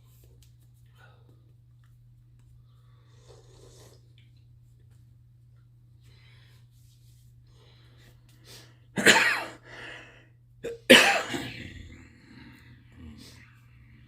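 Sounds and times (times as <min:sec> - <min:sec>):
person sneezing: 0:09.0 - 0:09.6, 0:10.6 - 0:12.0.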